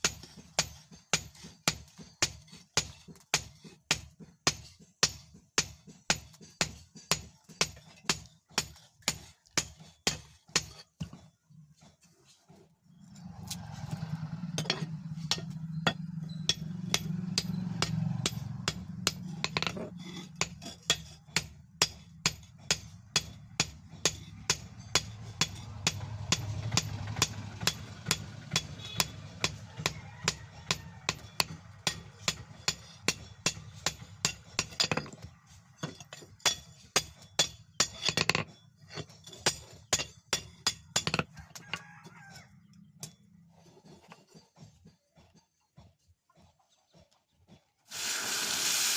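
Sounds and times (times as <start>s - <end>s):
hammer striking steel: 0.0s - 10.8s, 14.6s - 35.2s, 35.8s - 38.4s.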